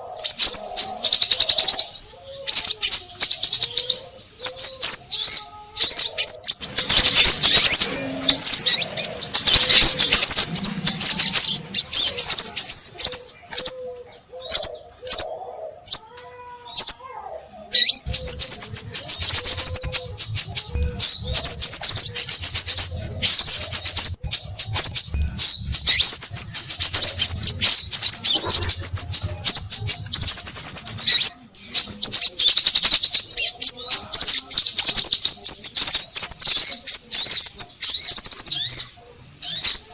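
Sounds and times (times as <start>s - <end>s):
birds chirping rapidly: 0.0s - 39.9s.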